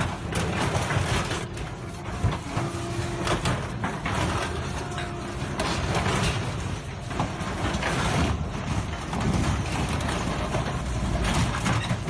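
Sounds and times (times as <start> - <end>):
shredder crushing metal: 0.0 - 12.0
shredder machine running: 0.0 - 12.0
metal squeals: 0.2 - 7.1.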